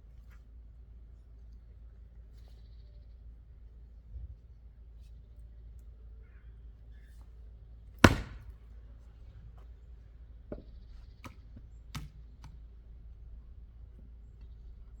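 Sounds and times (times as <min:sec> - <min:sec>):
light knocks: 0:08.0 - 0:08.4
chopping blow into wood: 0:08.0 - 0:08.5.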